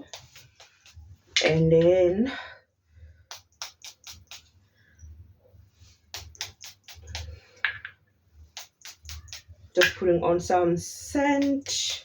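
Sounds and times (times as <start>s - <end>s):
short sharp clicks and taps: 3.3s - 4.5s, 6.1s - 8.0s.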